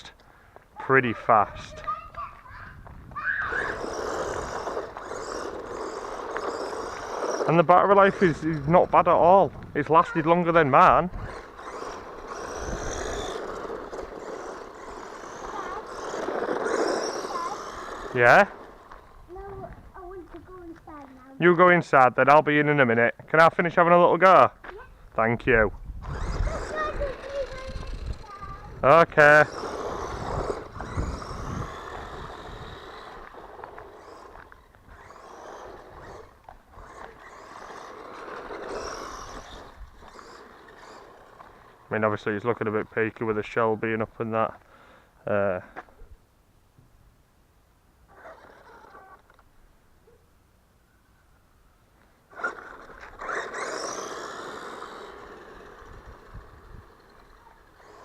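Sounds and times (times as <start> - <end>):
rc car tyre noise: 1.3 - 21.5, 25.4 - 46.0, 48.1 - 49.6, 52.0 - 58.0
rc car motor whine: 1.4 - 20.8, 25.6 - 44.0, 48.1 - 49.5, 52.3 - 58.0.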